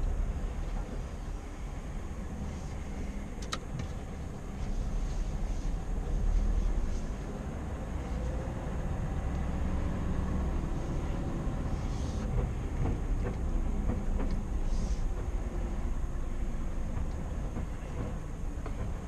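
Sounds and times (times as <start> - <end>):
truck diesel engine rumble: 0.0 - 19.0.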